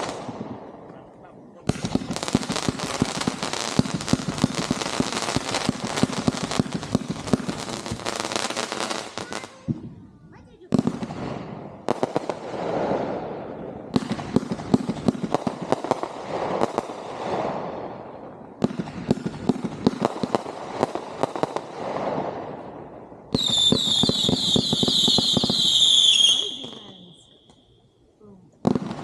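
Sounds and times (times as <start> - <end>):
fireworks bangs and crackling: 0.0 - 27.6, 28.6 - 29.0
shrill firework whistling: 23.4 - 27.4.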